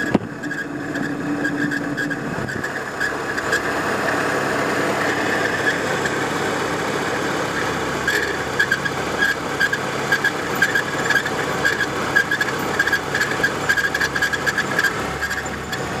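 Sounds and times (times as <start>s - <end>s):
high-pitched squeak: 0.0s - 3.7s, 7.5s - 15.9s
car engine running: 0.0s - 16.0s.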